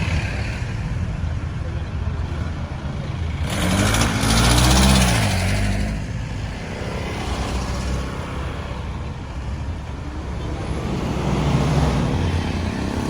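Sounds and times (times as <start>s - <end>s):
road traffic noise: 0.0s - 13.0s
vehicle passing by: 3.0s - 13.0s.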